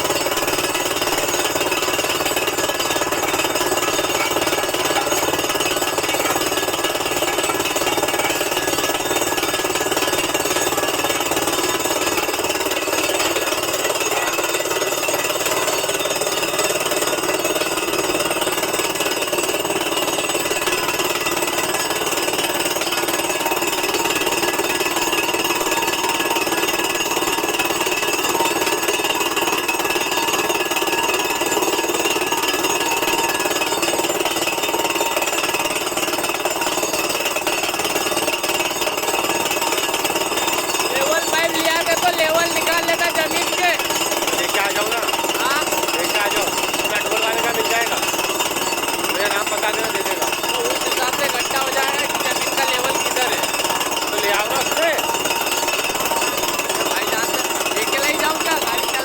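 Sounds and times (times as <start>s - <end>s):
air compressor running: 0.0s - 59.0s
rock drill hammering: 0.0s - 59.0s.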